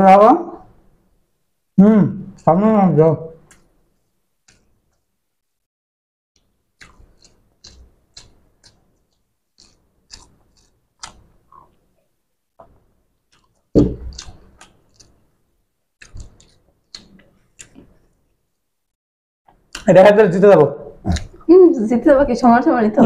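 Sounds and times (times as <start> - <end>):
wet chewing clicks and smacks: 6.4 - 15.3, 16.0 - 18.3
loud thump: 13.8 - 14.1.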